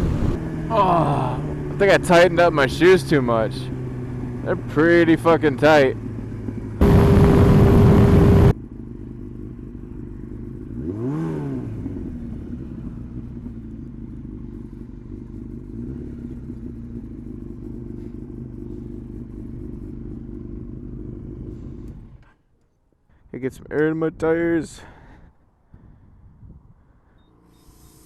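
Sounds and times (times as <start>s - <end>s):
motorcycle engine rev: 0.0s - 22.4s
motorcycle engine idling: 0.4s - 11.1s, 11.7s - 23.0s
loud rush of noise: 6.8s - 8.5s.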